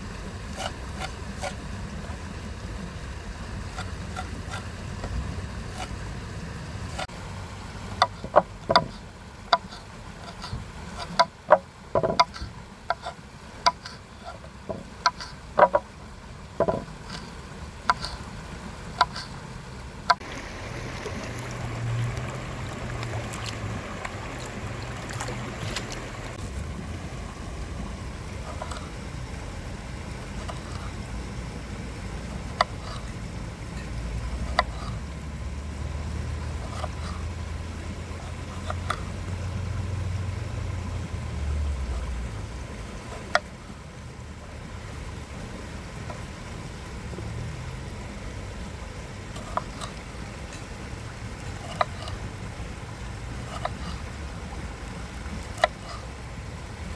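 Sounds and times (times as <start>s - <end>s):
steady hiss: 0.0s - 56.9s
steady low rumble: 0.0s - 56.9s
sharp irregular knocks and clicks: 8.0s - 15.9s, 16.6s - 17.2s, 19.0s - 19.3s
low hum: 13.6s - 56.9s.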